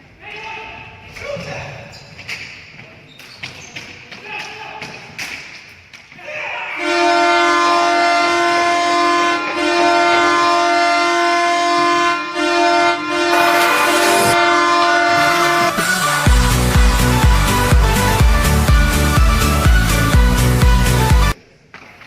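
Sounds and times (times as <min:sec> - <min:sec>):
deep loud goal horn blast: 0:06.8 - 0:21.3.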